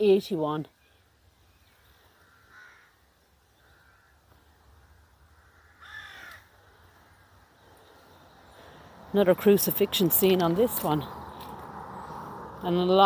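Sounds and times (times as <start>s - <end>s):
bird calling faintly: 0.7s - 8.8s.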